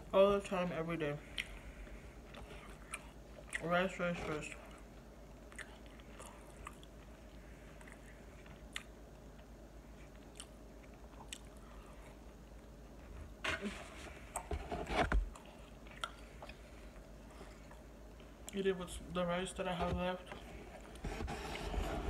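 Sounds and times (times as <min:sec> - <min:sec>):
person chewing crunchy pastry: 0:01.2 - 0:03.7, 0:04.3 - 0:12.8, 0:15.3 - 0:18.6
fork scraping foam container: 0:21.0 - 0:22.0.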